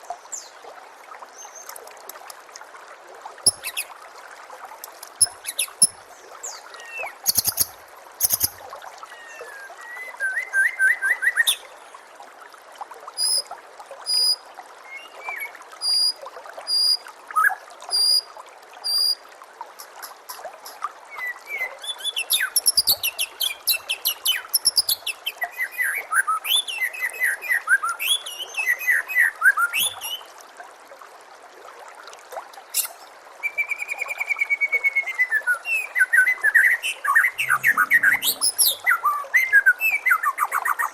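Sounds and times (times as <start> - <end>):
trickle of water: 0.0 - 40.9
songbird singing: 36.7 - 39.6.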